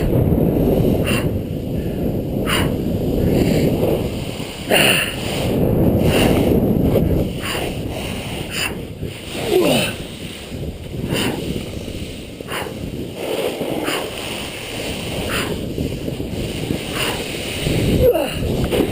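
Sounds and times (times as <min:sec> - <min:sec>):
snowboard scraping over snow: 0:00.0 - 0:18.9
wind on microphone: 0:00.0 - 0:18.9
person breathing: 0:00.8 - 0:03.8, 0:04.6 - 0:06.5, 0:07.3 - 0:13.0, 0:15.1 - 0:15.8, 0:16.6 - 0:18.6.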